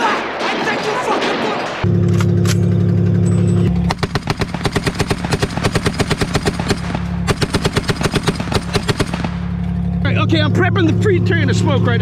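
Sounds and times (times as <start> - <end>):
vehicle engine idling: 1.9 - 12.0
machine gun firing bursts: 3.9 - 9.5.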